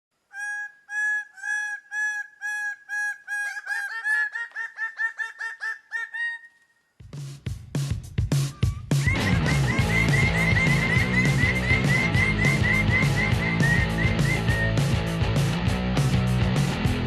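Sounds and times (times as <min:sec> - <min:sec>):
bird-like call notes: 0:08.5 - 0:14.8.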